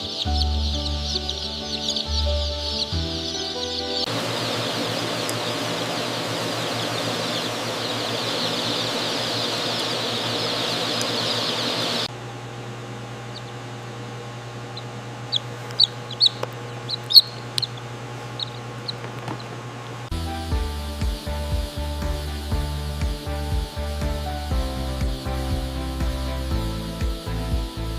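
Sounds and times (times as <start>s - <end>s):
chickens calling: 0.0s - 12.1s, 14.6s - 19.7s
loud high chirps: 0.0s - 12.1s, 14.8s - 19.0s
low hum: 0.0s - 27.9s.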